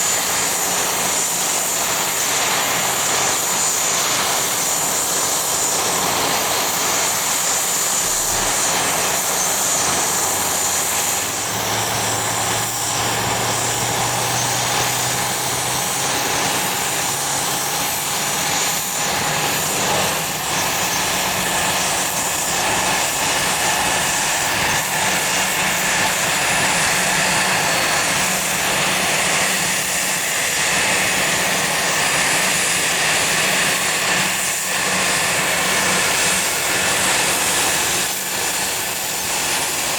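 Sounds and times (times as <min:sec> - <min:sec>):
aircraft engines rushing: 0:00.0 - 0:39.9.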